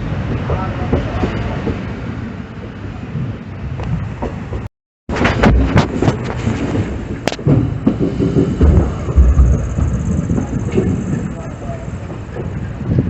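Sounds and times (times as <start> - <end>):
train rumble: 0.0 - 13.0
wheels knocking and clattering: 3.8 - 13.0.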